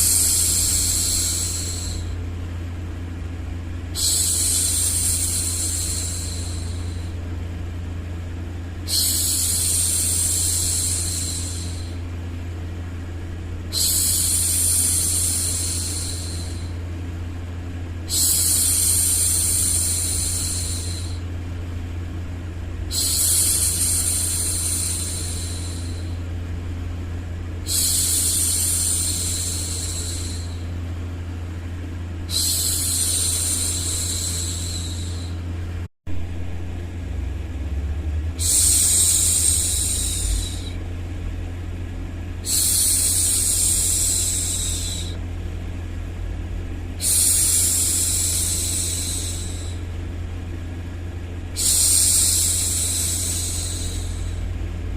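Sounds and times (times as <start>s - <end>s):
low hum: 0.0s - 54.9s
woman shushing: 4.0s - 7.2s, 8.9s - 12.0s, 13.7s - 16.8s, 22.9s - 26.2s, 27.7s - 30.7s, 32.3s - 35.4s, 38.4s - 40.8s, 42.4s - 45.2s, 47.0s - 49.9s, 51.6s - 54.5s.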